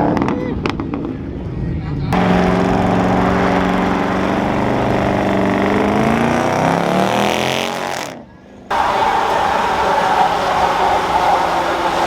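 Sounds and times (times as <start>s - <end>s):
truck engine revving: 2.2s - 12.0s.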